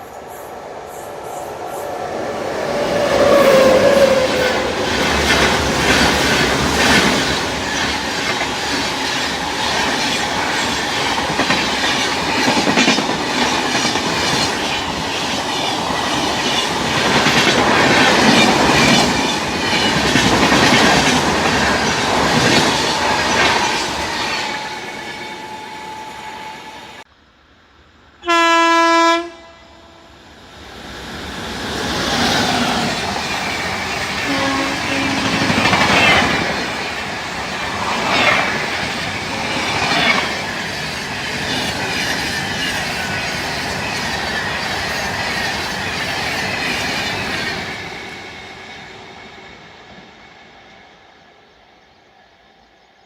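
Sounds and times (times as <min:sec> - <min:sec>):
train wheel squeal: 0:00.0 - 0:13.0, 0:18.2 - 0:27.0, 0:31.8 - 0:52.8
train wheels clattering on rails: 0:02.5 - 0:25.1, 0:31.4 - 0:50.2.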